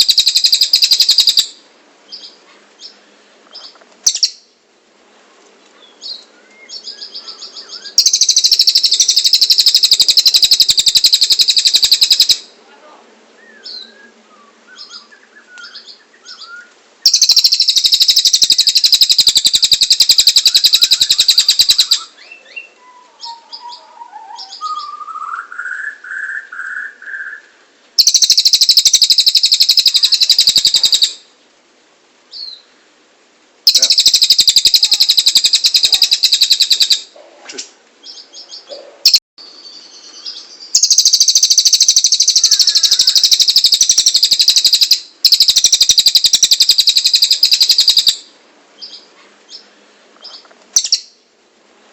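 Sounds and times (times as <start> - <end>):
bird singing rapid high trills: 0.0 - 2.4, 4.1 - 4.5, 5.9 - 12.5, 13.4 - 31.3, 33.7 - 37.1, 38.0 - 49.7, 50.8 - 51.2
soft bird chirps: 2.1 - 4.5, 13.4 - 31.2, 37.6 - 48.2
clear whistled bird notes: 5.8 - 12.4, 13.4 - 31.2, 38.1 - 48.2.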